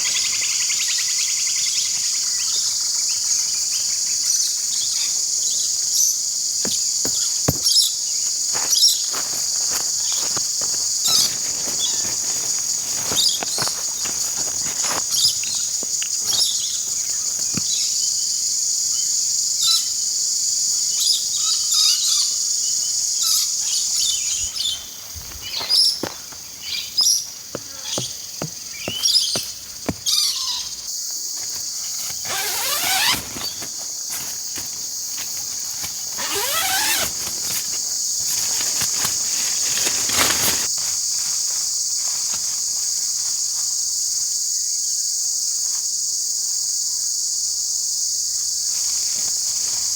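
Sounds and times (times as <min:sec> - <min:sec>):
insect chorus: 0:00.0 - 0:49.9.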